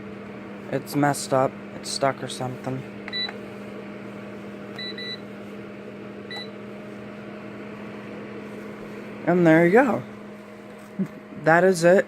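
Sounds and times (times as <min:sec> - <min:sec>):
space heater fan hum: 0:00.0 - 0:12.0
control panel beeping: 0:03.0 - 0:03.4, 0:04.8 - 0:05.2, 0:06.3 - 0:06.6.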